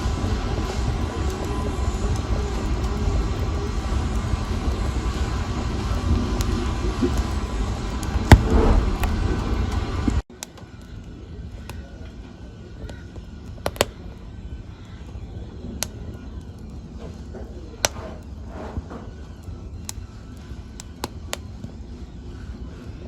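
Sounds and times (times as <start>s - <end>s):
fire rushing burn: 0.0s - 10.2s
wood fire crackling and popping: 0.0s - 21.9s.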